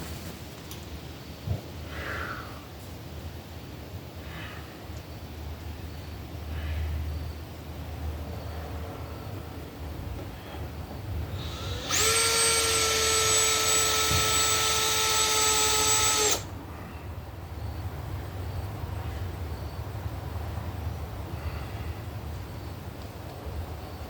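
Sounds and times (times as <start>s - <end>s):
power drill motor spinning: 11.3s - 16.5s.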